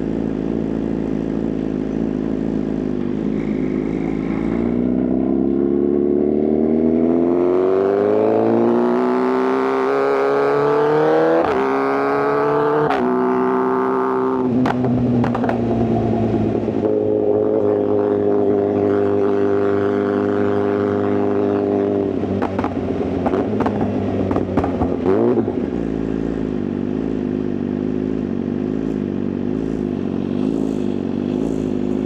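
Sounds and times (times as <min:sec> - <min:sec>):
motorcycle engine accelerating: 0:00.0 - 0:32.0
exhaust pops: 0:14.5 - 0:16.7, 0:22.4 - 0:25.6.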